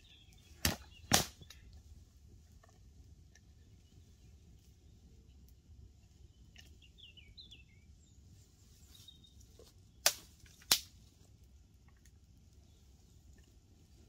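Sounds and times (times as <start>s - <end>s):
bird chirping: 0.0s - 1.8s, 6.0s - 10.2s
sharp cracks: 0.6s - 1.6s, 10.0s - 11.0s.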